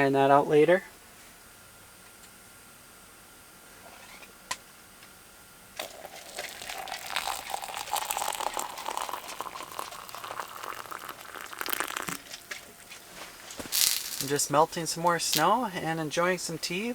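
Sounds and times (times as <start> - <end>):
snow crackling in a pot: 5.8 - 16.9.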